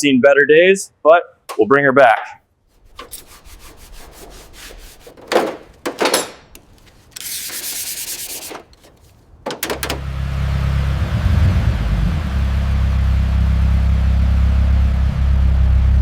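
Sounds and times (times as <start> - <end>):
sanding on car body: 2.8 - 9.1.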